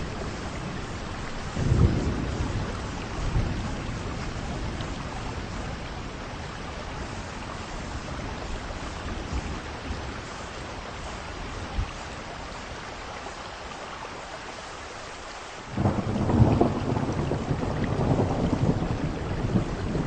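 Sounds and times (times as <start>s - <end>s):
thunder rumbling: 0.0s - 10.4s, 15.7s - 20.0s
heavy rain: 0.0s - 20.0s.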